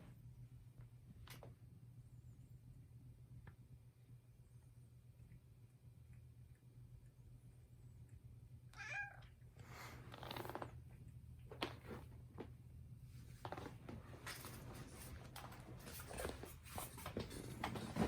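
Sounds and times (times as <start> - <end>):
soft noisy sounds: 0.0 - 18.0
cat meowing: 8.7 - 9.3.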